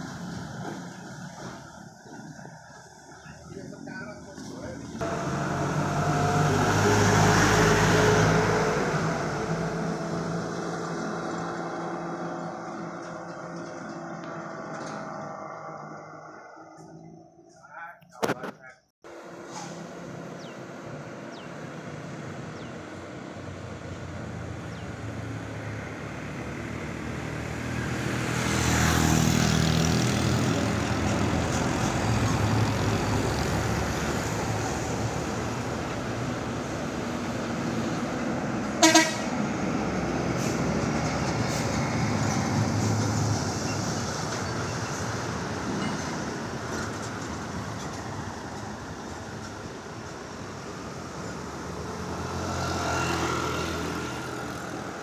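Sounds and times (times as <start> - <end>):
heavy trucks driving past: 0.0 - 17.5, 19.1 - 55.0
vehicle horn toot: 38.8 - 39.3.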